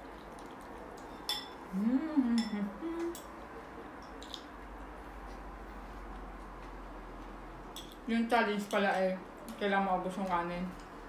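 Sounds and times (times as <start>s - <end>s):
chopsticks clinking against a dish: 1.0s - 1.6s, 2.4s - 3.4s, 4.0s - 4.6s
person humming mm: 1.7s - 3.3s.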